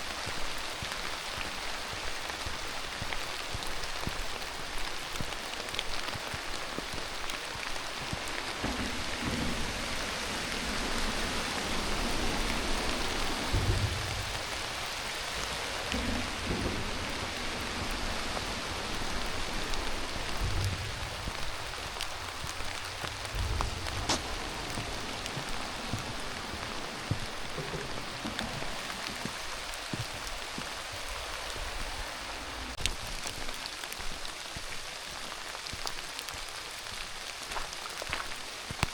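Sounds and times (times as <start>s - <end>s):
steady rain falling: 0.0s - 38.9s
dull low thumps: 15.9s - 29.6s.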